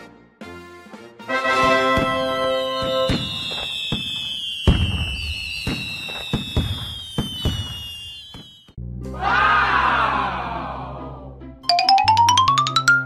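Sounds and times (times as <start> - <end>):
firework bangs and crackles: 1.6 - 8.8
falling firework whistles: 1.8 - 8.8
ringing chime falling in pitch: 11.7 - 13.0.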